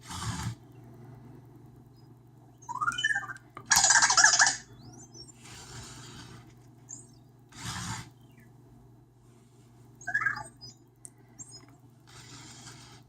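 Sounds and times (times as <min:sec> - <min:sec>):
robot electronic chirps: 0:02.0 - 0:05.4, 0:10.0 - 0:10.8
robot whirring: 0:07.5 - 0:08.1, 0:12.0 - 0:13.0.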